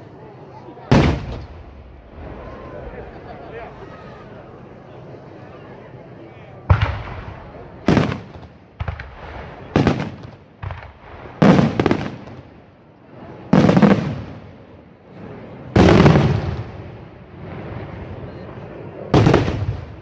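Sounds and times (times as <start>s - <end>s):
fireworks bursting: 0.9s - 3.5s, 6.7s - 12.7s, 13.4s - 14.7s, 15.3s - 20.0s.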